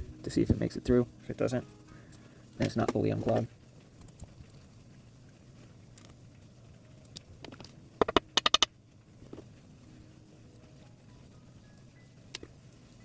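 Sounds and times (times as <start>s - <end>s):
sharp clicks: 7.4s - 8.7s.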